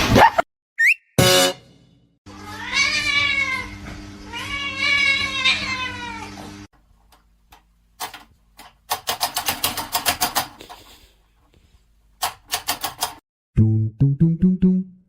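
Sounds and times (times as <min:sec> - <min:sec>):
music with plucked bass: 0:13.6 - 0:15.0.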